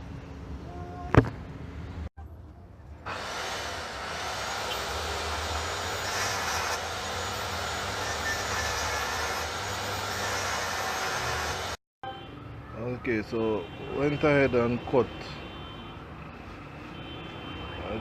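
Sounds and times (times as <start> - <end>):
power tool cutting metal: 3.1 - 11.8.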